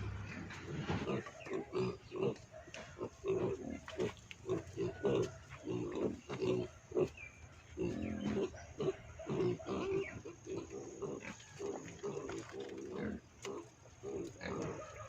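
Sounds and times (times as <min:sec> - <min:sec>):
animal grunting: 0:00.0 - 0:07.2, 0:07.8 - 0:15.0
drawn-out animal call: 0:13.6 - 0:15.0.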